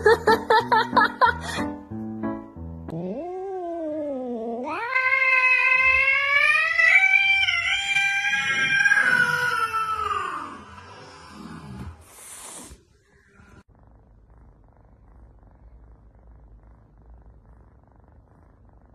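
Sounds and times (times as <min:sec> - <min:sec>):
cat yowling: 0:03.1 - 0:11.4.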